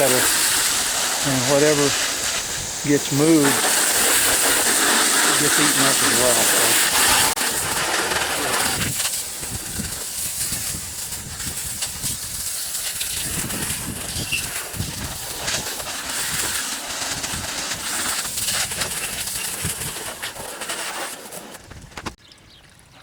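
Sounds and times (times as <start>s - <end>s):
hose spraying water: 0.0s - 21.8s
water splashing off parts: 0.0s - 23.0s.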